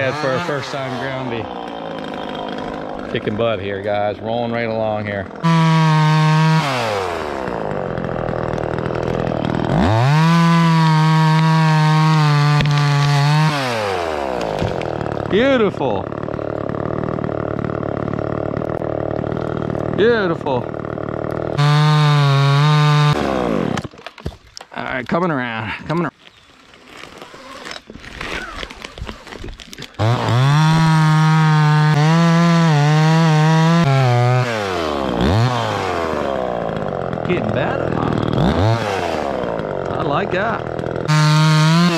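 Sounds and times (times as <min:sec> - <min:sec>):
chainsaw idling and revving: 0:00.0 - 0:24.9, 0:26.9 - 0:41.9
clicking and scraping: 0:23.7 - 0:25.2, 0:25.9 - 0:30.0.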